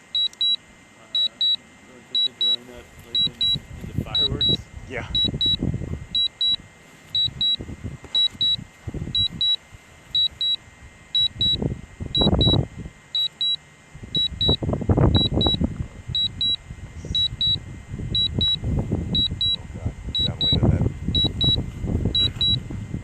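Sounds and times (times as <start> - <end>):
high-pitched double beeps: 0.1 - 0.6, 1.2 - 6.6, 7.2 - 7.6, 8.2 - 9.6, 10.2 - 10.6, 11.2 - 12.6, 13.2 - 13.6, 14.2 - 15.6, 16.2 - 16.6, 17.2 - 17.6, 18.2 - 18.6, 19.2 - 22.6
wind rumble on microphone: 2.9 - 13.0, 13.9 - 23.0.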